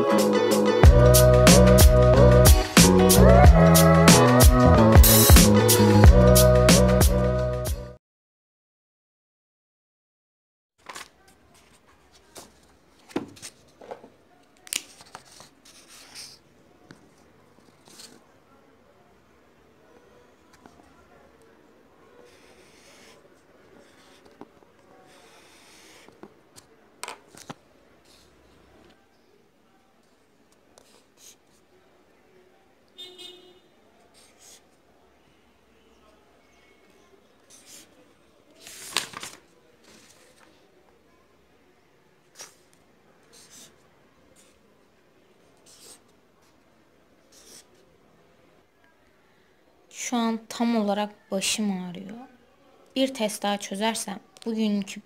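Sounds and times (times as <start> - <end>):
pen scratching on paper: 14.9 - 16.4, 17.6 - 18.2, 22.2 - 26.3, 30.8 - 31.6, 34.1 - 34.7, 37.5 - 38.0, 42.4 - 43.8, 45.6 - 46.1, 47.3 - 47.8.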